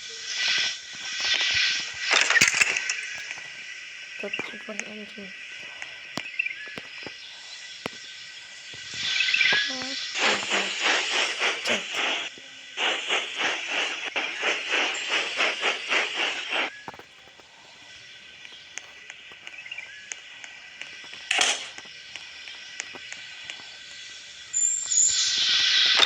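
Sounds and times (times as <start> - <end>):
burst of steam: 0.0 - 19.2, 20.6 - 26.0
steam hissing: 0.0 - 26.0
steam locomotive chuffing: 8.7 - 19.3.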